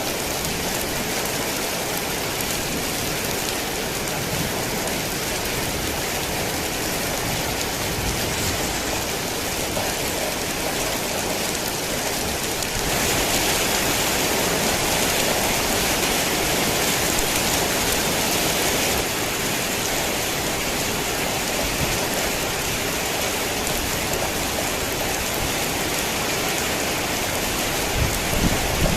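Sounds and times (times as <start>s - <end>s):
rain falling steadily: 0.0s - 28.9s.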